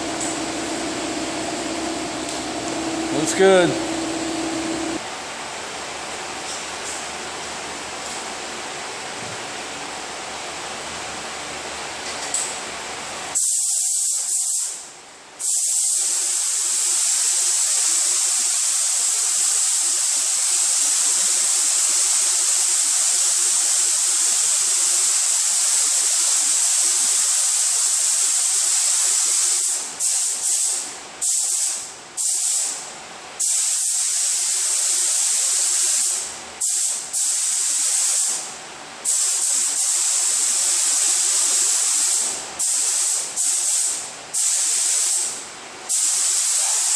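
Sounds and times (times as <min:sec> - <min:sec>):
paint spray gun hissing: 0:00.0 - 0:05.0.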